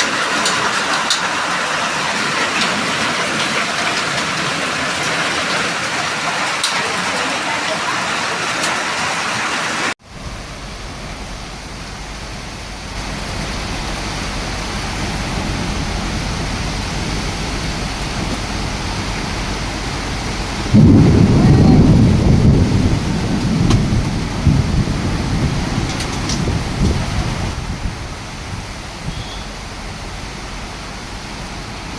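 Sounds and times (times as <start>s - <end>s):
heavy rain falling: 0.0s - 31.9s
loud low thunder rumble: 10.1s - 30.3s.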